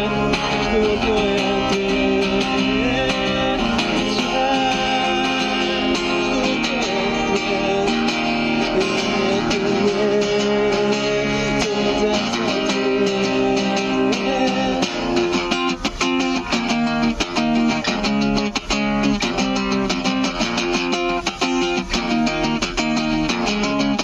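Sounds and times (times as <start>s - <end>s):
guitar strumming: 0.0s - 24.0s
sustained melody line: 0.0s - 24.0s.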